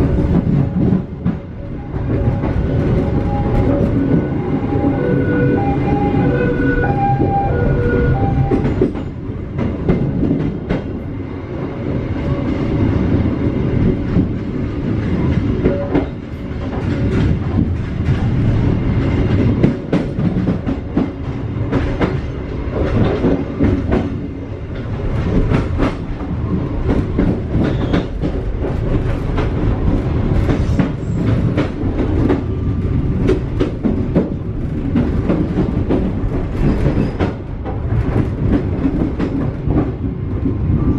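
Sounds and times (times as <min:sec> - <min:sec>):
low train rumble: 0:00.0 - 0:40.9
train wheels clacking over rail joints: 0:08.3 - 0:11.1, 0:13.0 - 0:40.9.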